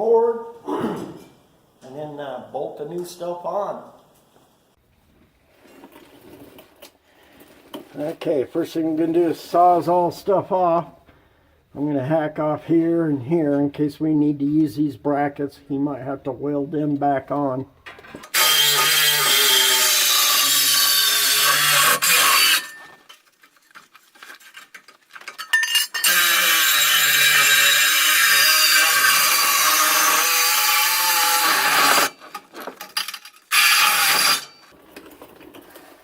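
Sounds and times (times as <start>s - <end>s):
reciprocating saw cutting pipe: 18.3s - 22.8s, 26.0s - 32.2s, 33.5s - 34.7s.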